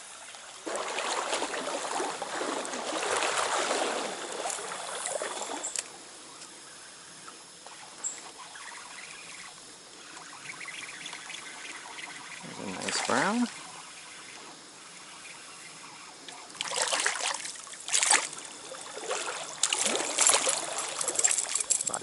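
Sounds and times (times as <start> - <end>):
stream water running: 0.0 - 22.0
loud splashing in water: 0.6 - 4.5, 16.6 - 21.0.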